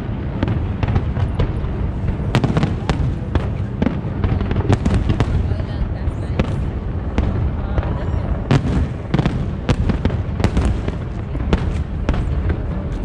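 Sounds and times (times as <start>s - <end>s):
fireworks sharp bangs: 0.0s - 13.0s
low rumble of booms: 0.0s - 13.0s.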